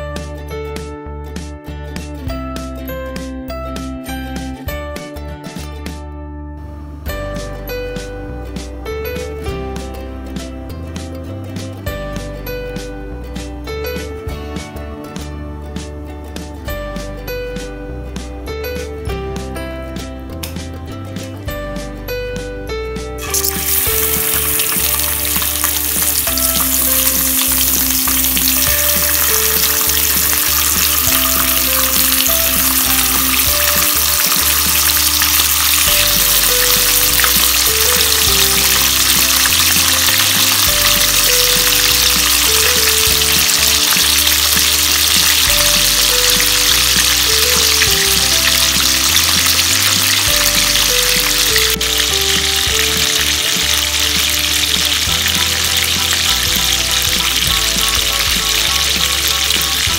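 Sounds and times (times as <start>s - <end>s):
quiet background music: 0.0s - 59.9s
chicken sizzling in hot oil: 23.2s - 59.9s.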